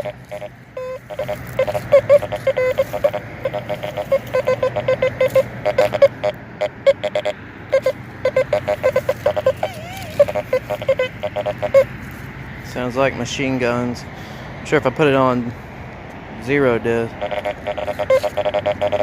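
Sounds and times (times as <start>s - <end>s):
metal detector short beeps: 0.0s - 6.3s, 6.9s - 11.9s, 17.2s - 19.0s.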